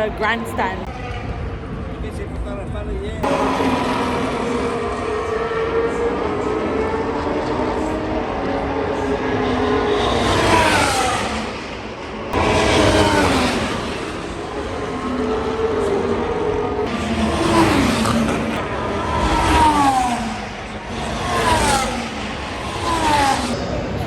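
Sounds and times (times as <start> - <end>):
racing cars passing at speed: 0.0 - 2.5, 3.2 - 24.0.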